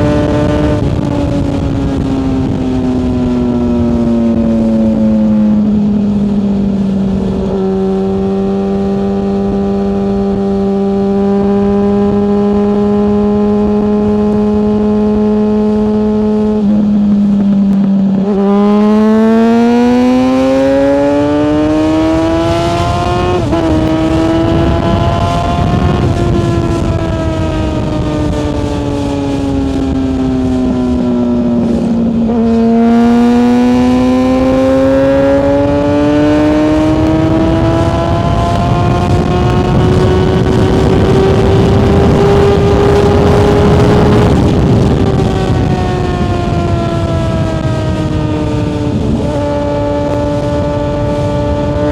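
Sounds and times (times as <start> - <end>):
motorcycle engine: 0.0 - 51.9
wind rush: 0.0 - 51.9.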